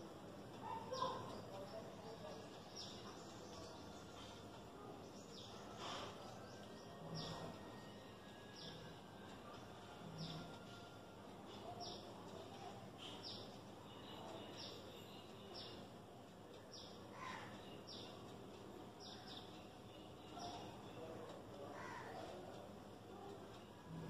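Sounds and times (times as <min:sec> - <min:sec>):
bird chirping: 0:10.1 - 0:10.8.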